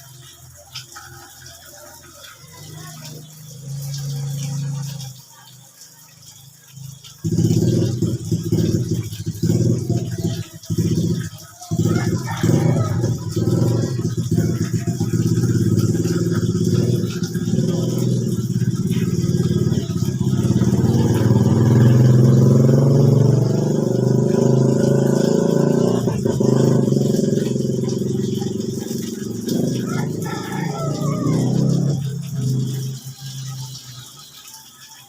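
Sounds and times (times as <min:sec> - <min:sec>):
engine running steadily: 0:06.7 - 0:34.1.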